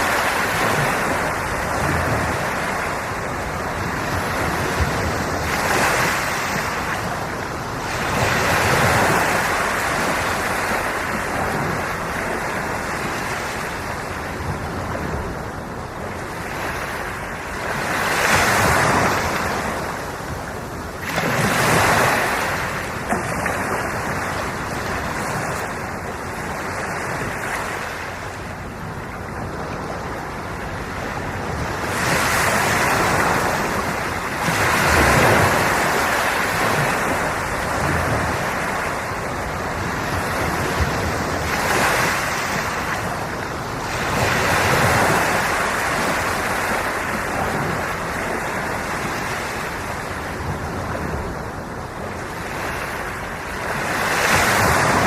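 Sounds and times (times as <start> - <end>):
sea waves breaking on shore: 0.0 - 55.0.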